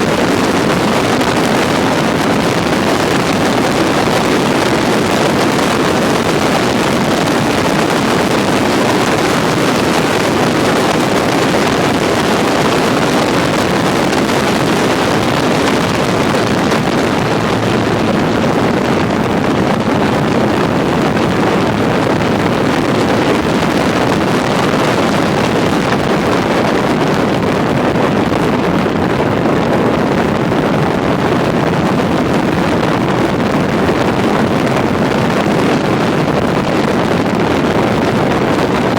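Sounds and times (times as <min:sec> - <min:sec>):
motorcycle engine and road noise: 0:00.0 - 0:38.9
wind rush over microphone: 0:00.0 - 0:38.9.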